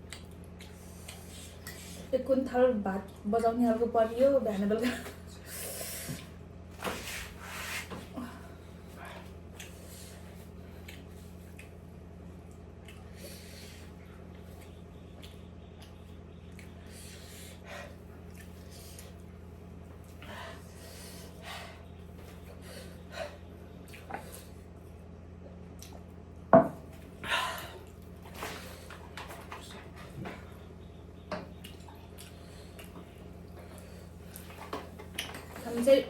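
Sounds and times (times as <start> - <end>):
wet chewing and lip smacks: 0.0 - 1.8, 10.8 - 13.2, 14.6 - 16.8, 18.2 - 19.3, 23.8 - 24.2, 25.6 - 26.2, 31.5 - 33.6
steady low hum: 0.0 - 36.0.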